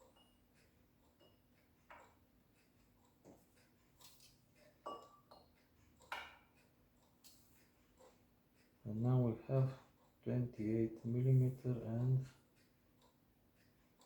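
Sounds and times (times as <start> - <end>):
sharp metallic clicks and taps: 0.0 - 4.7.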